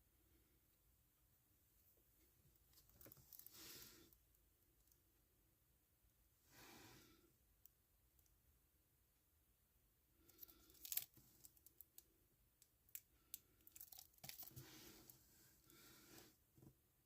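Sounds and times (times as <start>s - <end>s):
plastic wrap tearing and crinkling: 13.8s - 14.6s.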